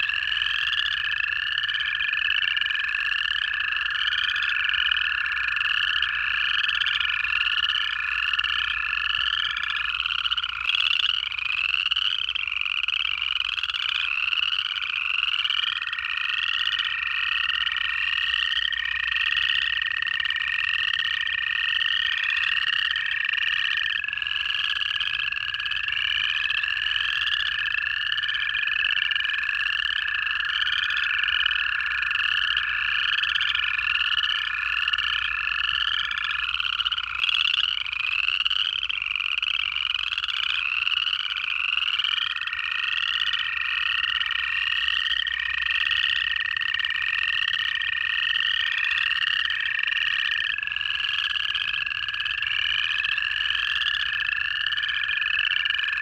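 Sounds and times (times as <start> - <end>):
chorus frogs rising trills: 0.0 - 56.0
toads long steady trills: 0.0 - 56.0.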